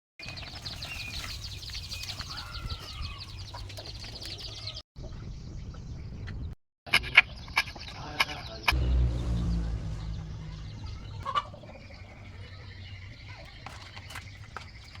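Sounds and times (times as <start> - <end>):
chickens clucking: 0.2 - 4.8, 10.9 - 15.0.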